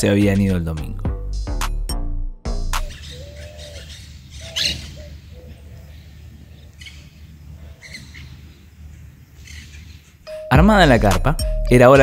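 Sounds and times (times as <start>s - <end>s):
wild birds calling: 2.8s - 10.3s.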